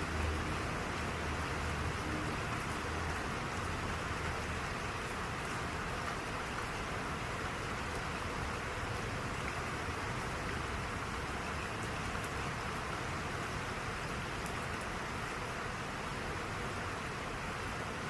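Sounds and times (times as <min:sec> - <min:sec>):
rain falling: 0:00.0 - 0:18.0
faint raindrop ticks: 0:07.8 - 0:15.6.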